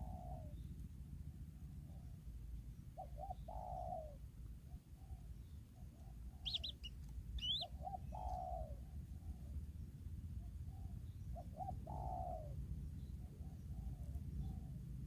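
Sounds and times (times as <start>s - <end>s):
dove cooing: 0.0s - 0.6s, 3.0s - 4.2s, 5.0s - 9.5s, 10.7s - 12.6s
steady low rumble: 5.6s - 15.0s
high bird chirps: 6.4s - 7.7s.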